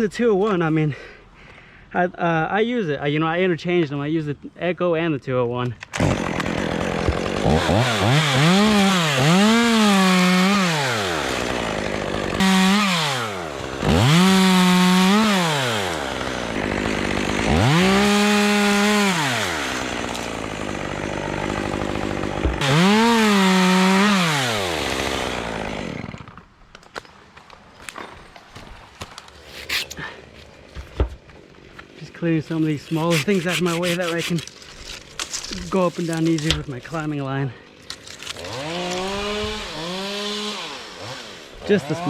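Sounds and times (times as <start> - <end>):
chainsaw revving and idling: 6.0 - 26.6, 37.9 - 42.0.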